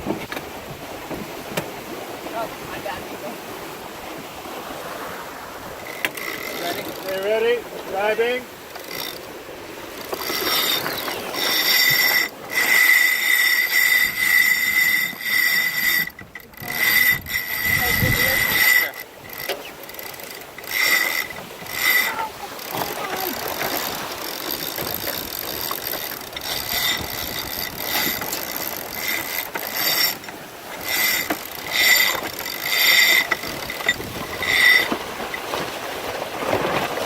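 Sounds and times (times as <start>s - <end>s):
water noise: 0.0s - 37.0s
wind: 0.0s - 37.0s
winch ratchet clicking: 5.8s - 7.4s, 8.7s - 9.3s, 9.9s - 35.0s.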